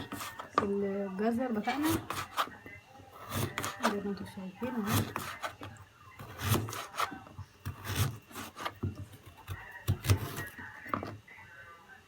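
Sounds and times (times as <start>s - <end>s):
knife cutting carrots on board: 0.0s - 0.7s, 1.6s - 4.0s, 4.6s - 11.2s.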